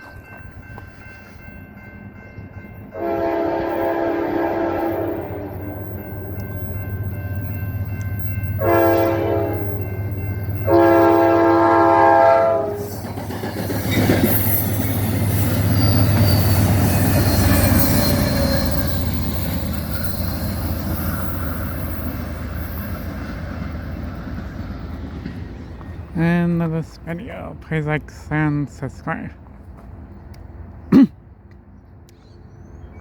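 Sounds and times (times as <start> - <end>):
train wheels rushing on rail: 2.8 - 28.7
train horn blasts: 2.9 - 6.0, 8.6 - 9.9, 10.6 - 13.0.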